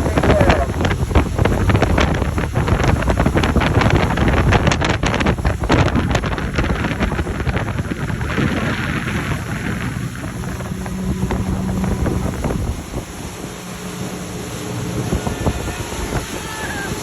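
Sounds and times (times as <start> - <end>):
engine hum: 0.0 - 17.0
speedboat low rumble: 0.0 - 17.0
wind buffeting microphone: 0.0 - 17.0.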